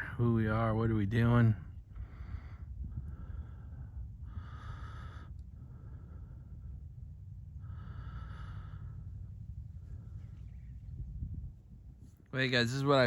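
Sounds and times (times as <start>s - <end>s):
steady low rumble: 0.0s - 13.0s
heavy breathing: 1.9s - 10.4s.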